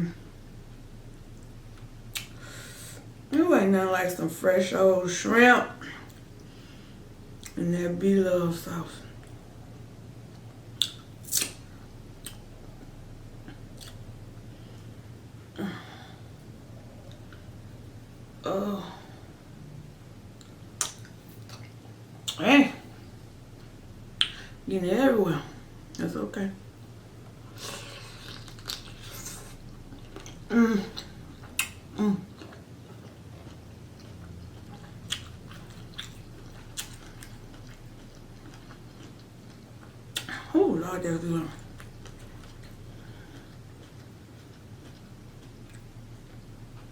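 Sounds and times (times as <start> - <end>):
low steady hum: 0.0 - 46.9
wet mouth smacks: 10.8 - 11.6, 20.8 - 22.4, 24.2 - 24.4, 31.5 - 31.8
biting and chewing shrimp: 27.2 - 40.4, 41.6 - 46.9.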